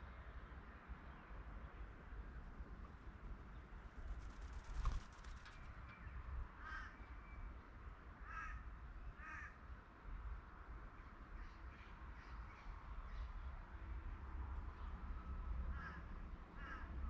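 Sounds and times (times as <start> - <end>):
crow cawing: 8.2 - 8.6, 9.2 - 9.6, 16.6 - 16.9.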